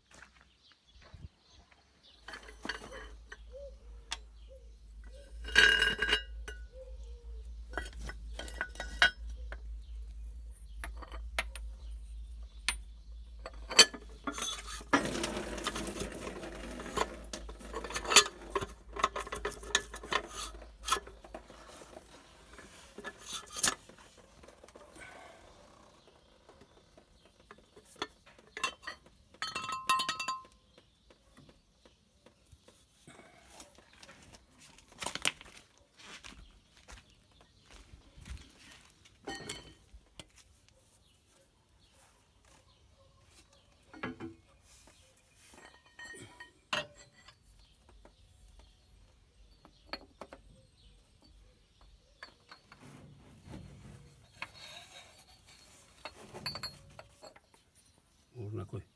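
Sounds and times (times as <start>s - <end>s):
metal tools clinking: 2.2s - 25.9s, 27.4s - 30.6s, 39.2s - 40.0s, 45.4s - 47.8s, 51.2s - 57.6s
low steady hum: 2.3s - 24.2s.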